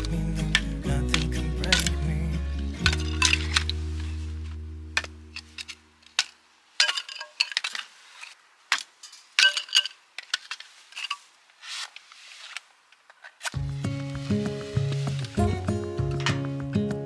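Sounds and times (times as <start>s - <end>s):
utensils and dishes clinking: 0.0s - 3.8s.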